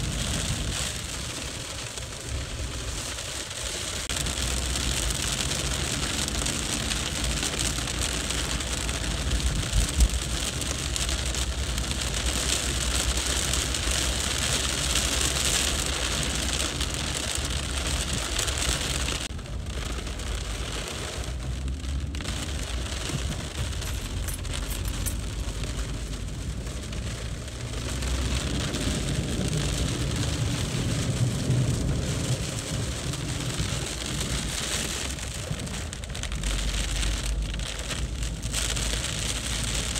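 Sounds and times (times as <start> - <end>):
heavy rain on a street: 0.0 - 39.9
low rumble: 15.4 - 39.9.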